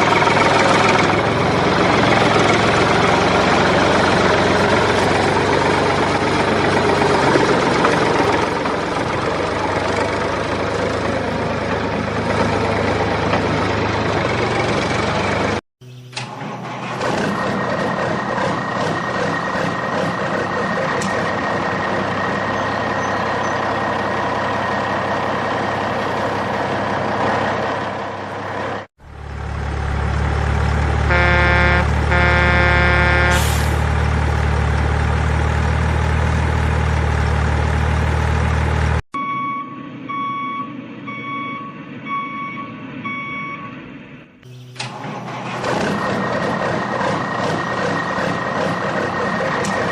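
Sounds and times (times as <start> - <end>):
truck engine running: 0.0 - 49.9
deep engine rumble: 17.4 - 39.0
truck horn blasts: 31.0 - 33.9
reversing alarm beeping: 31.1 - 33.6, 39.2 - 44.9.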